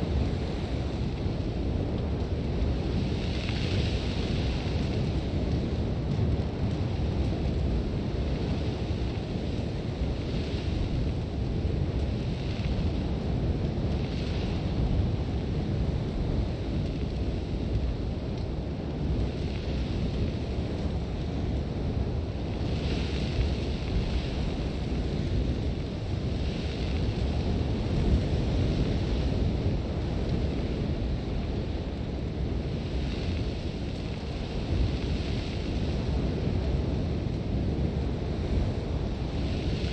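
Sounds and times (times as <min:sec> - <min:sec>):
deep wind blowing: 0:00.0 - 0:39.9
hissing blowing sand: 0:19.3 - 0:39.9.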